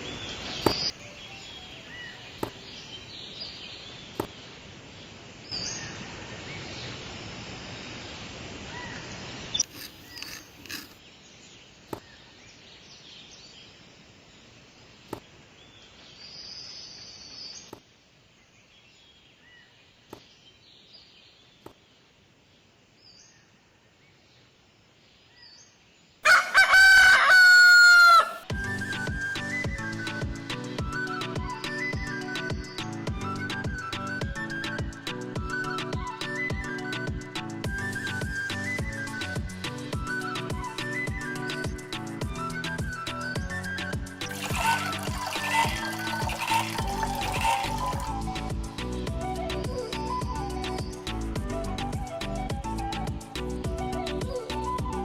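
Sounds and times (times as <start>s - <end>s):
rooster crowing: 26.2s - 28.5s.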